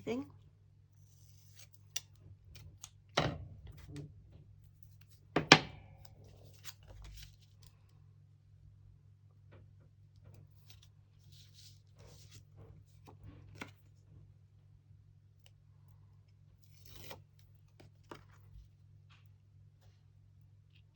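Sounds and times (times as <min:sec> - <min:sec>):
paper rustling: 0:06.1 - 0:07.7, 0:10.6 - 0:13.8.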